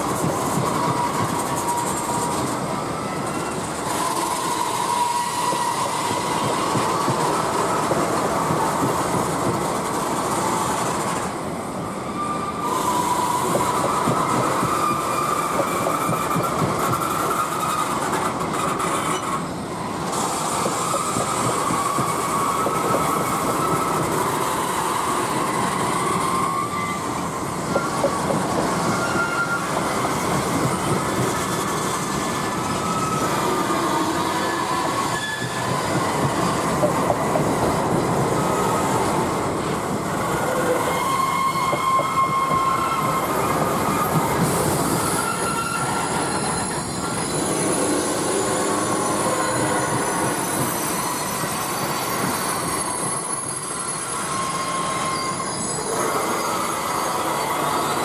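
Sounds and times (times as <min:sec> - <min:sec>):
train wheels rumbling on rail: 0:00.0 - 0:58.0
wheels squealing: 0:12.0 - 0:58.0.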